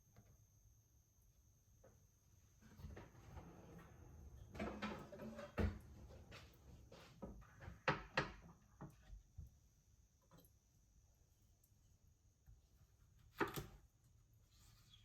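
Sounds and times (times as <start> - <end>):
kitchen knocks and clicks: 7.2 - 9.1.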